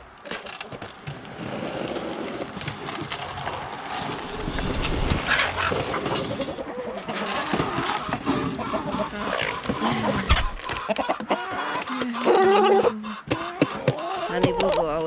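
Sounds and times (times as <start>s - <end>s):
rustling: 2.4s - 8.4s
wind rumble on microphone: 3.6s - 6.6s
chickens clucking: 4.2s - 15.0s.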